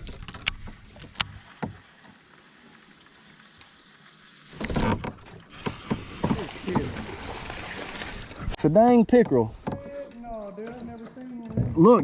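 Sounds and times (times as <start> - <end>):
fish thrashing and splashing water: 4.5 - 8.6.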